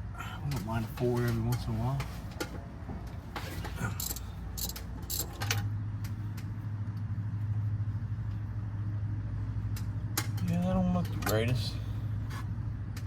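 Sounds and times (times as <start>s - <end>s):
low mechanical hum: 0.0s - 13.0s
metallic clicks and clinks: 3.9s - 5.7s.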